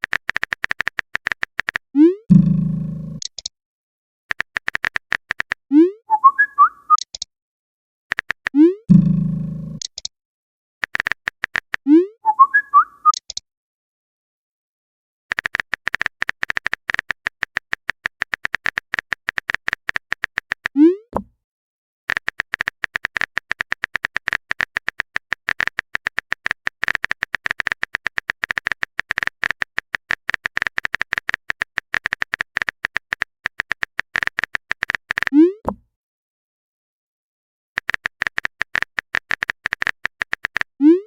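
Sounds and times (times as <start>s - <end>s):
typing clicks: 0.0s - 1.9s, 3.2s - 3.5s, 4.3s - 5.6s, 8.1s - 9.0s, 9.8s - 10.1s, 10.8s - 11.9s, 13.0s - 13.4s, 15.3s - 20.8s, 22.1s - 35.4s, 37.8s - 40.7s
rising pop message tone: 5.7s - 6.7s.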